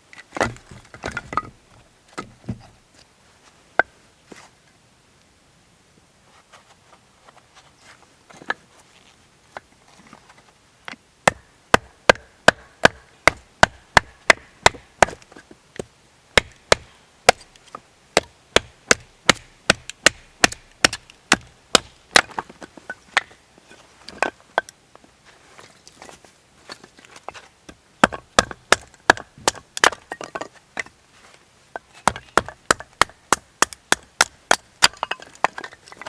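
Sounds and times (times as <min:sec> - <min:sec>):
chopping strikes on wood: 0:00.4 - 0:01.5, 0:11.3 - 0:15.2, 0:16.4 - 0:17.5, 0:18.2 - 0:22.4, 0:28.0 - 0:30.4, 0:32.0 - 0:35.2.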